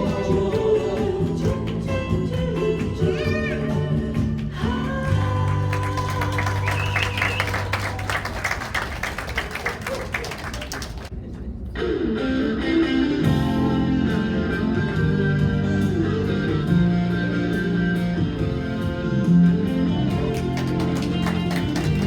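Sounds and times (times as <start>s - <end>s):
bass and backing band: 0.0s - 11.1s, 11.8s - 22.0s
picked guitar notes: 12.0s - 22.0s.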